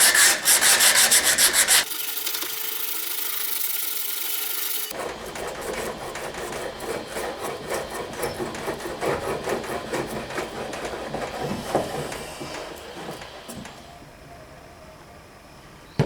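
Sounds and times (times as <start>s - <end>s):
hand tool rubbing on wood: 0.0s - 1.9s, 4.9s - 13.7s.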